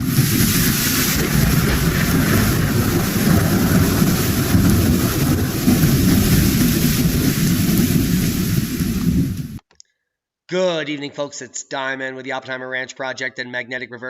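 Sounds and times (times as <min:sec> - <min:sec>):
hiss: 0:00.0 - 0:09.6
loud low rumble: 0:00.0 - 0:09.6.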